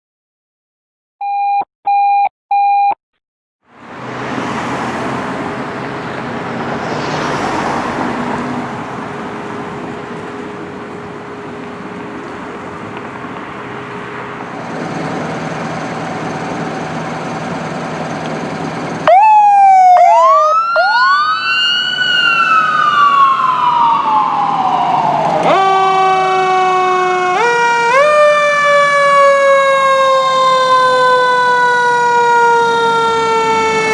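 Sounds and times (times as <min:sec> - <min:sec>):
short electronic beeps: 0:01.2 - 0:03.0
emergency vehicle sirens: 0:03.7 - 0:33.9
engine rumble: 0:03.7 - 0:33.9.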